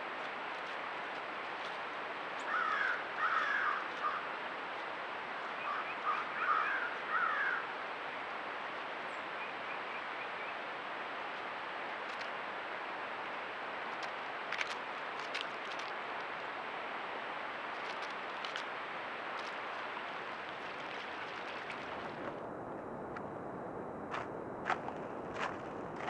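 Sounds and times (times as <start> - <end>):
background hiss: 0.0 - 22.2
bird harsh caw-like calls: 2.4 - 4.3, 5.6 - 7.7.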